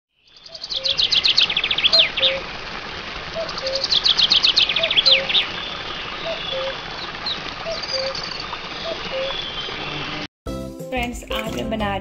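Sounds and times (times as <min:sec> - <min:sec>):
bird chirps: 0:00.2 - 0:02.4, 0:03.4 - 0:10.2.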